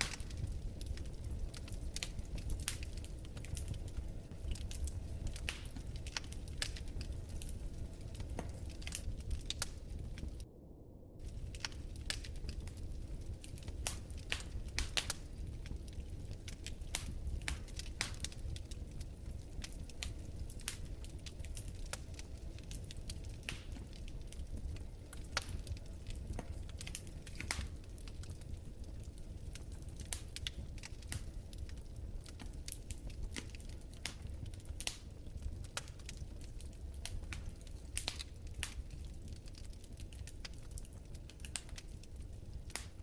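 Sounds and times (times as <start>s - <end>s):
fire crackling in fireplace: 0.0s - 10.5s, 11.2s - 43.0s.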